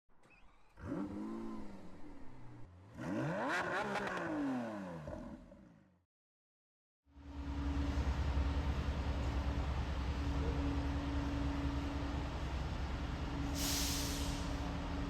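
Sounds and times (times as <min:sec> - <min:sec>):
car engine revving: 0:00.6 - 0:05.5.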